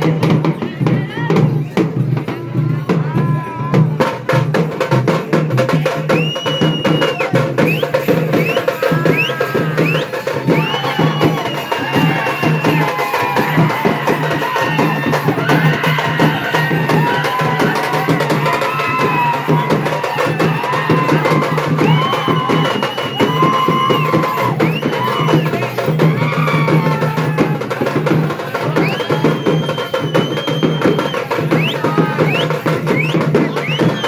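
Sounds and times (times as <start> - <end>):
frame drums beaten fast: 0.0 - 34.0
high pitched calls or whistles: 6.1 - 26.7, 28.7 - 34.0.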